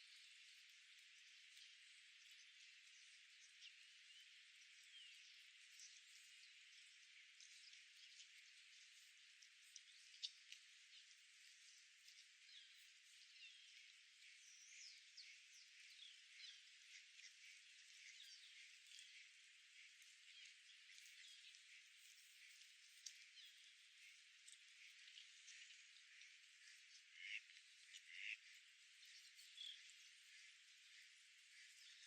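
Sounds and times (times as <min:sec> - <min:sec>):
small birds chirping: 0:00.0 - 0:32.0
light ticks: 0:07.4 - 0:13.9, 0:20.0 - 0:31.1.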